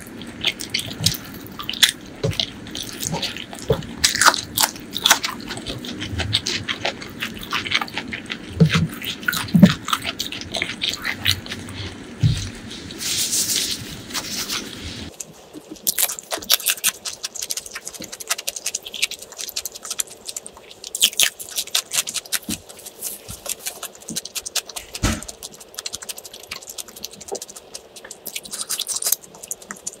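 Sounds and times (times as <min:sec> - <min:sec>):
crunchy chewing: 0:00.0 - 0:30.0
wet mouth clicks: 0:23.5 - 0:30.0.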